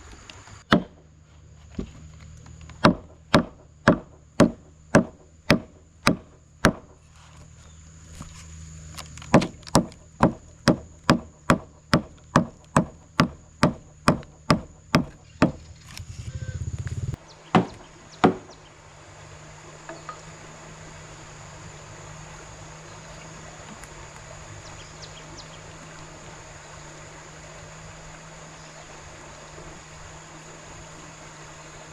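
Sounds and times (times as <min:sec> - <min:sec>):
steady background hiss: 0:00.0 - 0:31.9
chopping wood blows: 0:00.6 - 0:07.0, 0:09.2 - 0:18.6.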